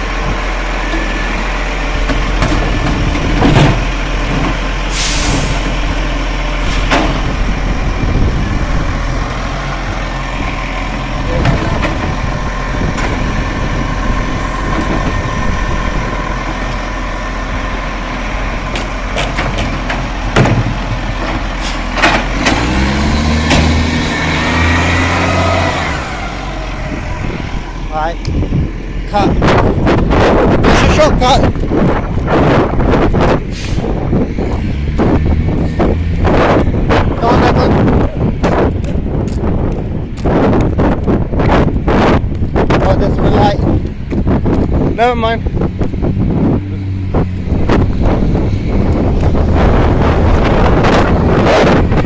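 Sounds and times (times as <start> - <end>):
garbage truck engine running: 0.0 - 52.0
knocks and clunks: 2.0 - 4.6, 6.7 - 7.4, 11.2 - 12.3, 12.9 - 13.3, 18.6 - 24.0
air brake hiss: 4.9 - 5.6.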